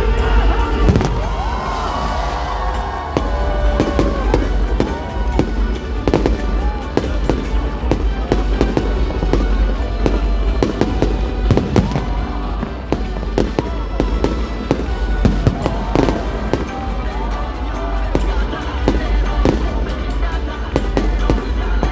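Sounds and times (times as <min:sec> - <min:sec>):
background music: 0:00.0 - 0:21.9
fireworks bursting and crackling: 0:00.0 - 0:21.9.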